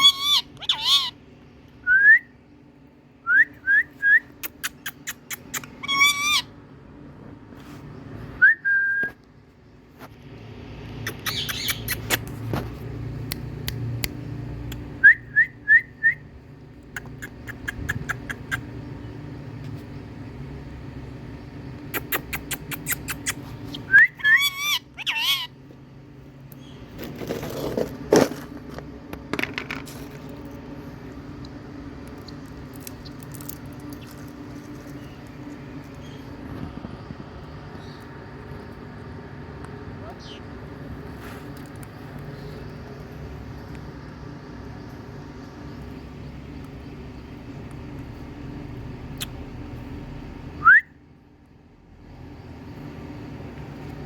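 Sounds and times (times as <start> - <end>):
parrot screeches: 0.0 - 1.2, 5.5 - 6.5, 24.2 - 25.6.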